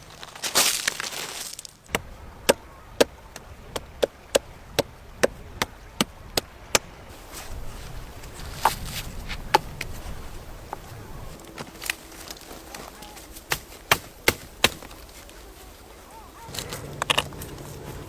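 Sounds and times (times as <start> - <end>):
blade chopping wood: 1.9 - 6.9, 11.5 - 15.1.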